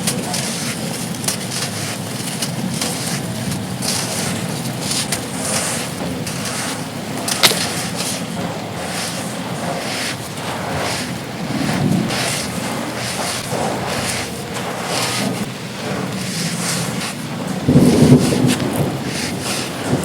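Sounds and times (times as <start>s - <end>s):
dry clay crumbling and crunching: 0.0s - 9.2s
wind buffeting microphone: 0.0s - 20.0s.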